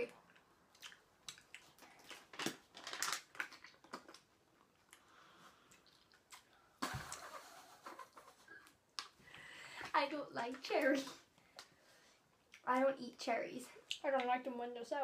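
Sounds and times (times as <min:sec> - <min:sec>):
wet mouth chewing clicks: 0:00.3 - 0:02.3, 0:05.7 - 0:06.6.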